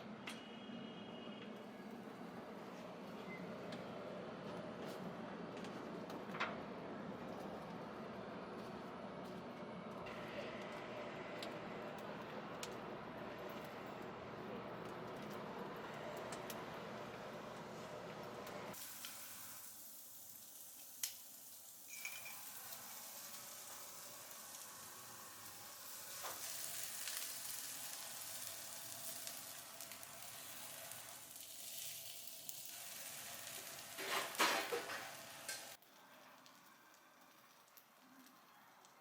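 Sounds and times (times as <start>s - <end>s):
food sizzling: 18.7s - 39.0s.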